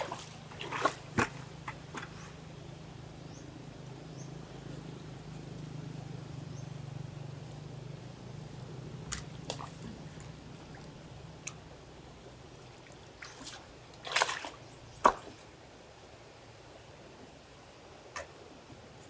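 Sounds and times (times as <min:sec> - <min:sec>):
water dripping and splashing: 0:00.0 - 0:02.1, 0:09.1 - 0:11.6, 0:12.6 - 0:15.4.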